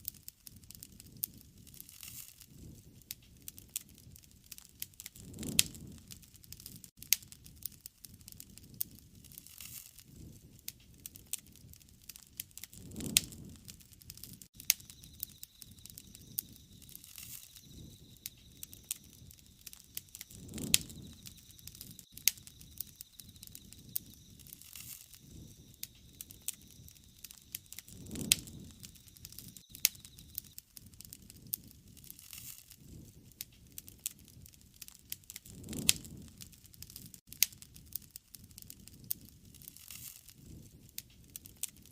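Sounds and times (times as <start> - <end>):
campfire crackling and popping: 0.0 - 41.9
whoosh of burning: 0.0 - 41.9
faint steady high tone: 14.6 - 30.5.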